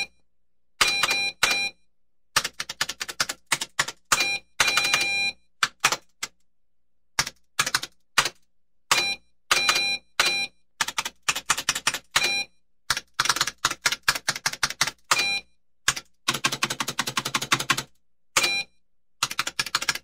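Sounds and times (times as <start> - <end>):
keyboard typing: 0.8 - 6.4, 7.2 - 20.0
short beeps: 4.2 - 5.5, 12.2 - 12.6, 15.1 - 15.6, 18.4 - 18.8.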